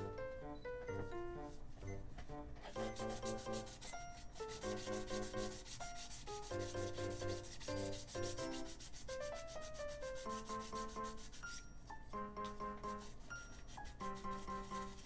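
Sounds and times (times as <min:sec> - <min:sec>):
melodic background music: 0:00.0 - 0:15.0
sanding strokes: 0:02.7 - 0:11.6, 0:12.6 - 0:15.0.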